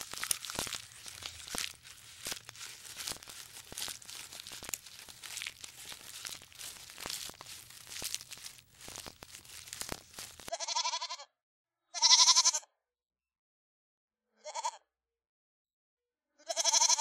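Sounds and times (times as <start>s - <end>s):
rustling and crackling of leaves: 0.0s - 10.5s.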